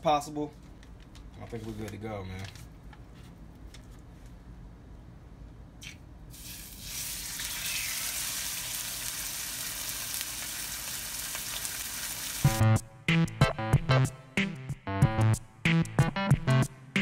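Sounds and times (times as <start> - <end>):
fish searing in a skillet: 6.4 - 12.5.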